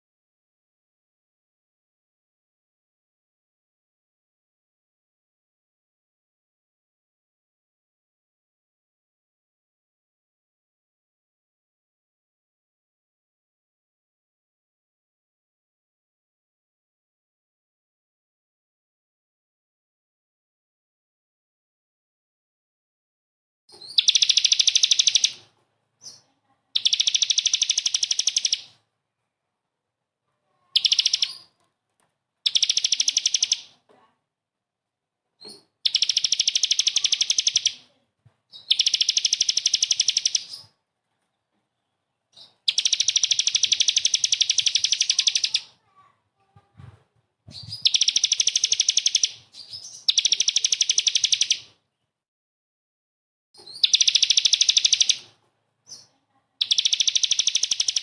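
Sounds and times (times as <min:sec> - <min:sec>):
songbird harsh rapid trills: 0:23.9 - 0:25.4, 0:26.8 - 0:28.7, 0:30.7 - 0:31.5, 0:32.4 - 0:33.7, 0:35.8 - 0:37.8, 0:38.6 - 0:40.7, 0:42.7 - 0:45.9, 0:47.8 - 0:49.4, 0:50.0 - 0:51.7, 0:53.7 - 0:55.3, 0:56.0 - 0:58.0.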